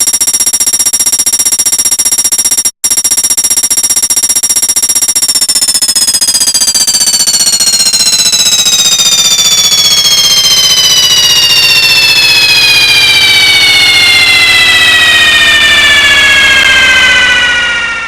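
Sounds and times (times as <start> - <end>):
high whine: 4.7 - 18.0.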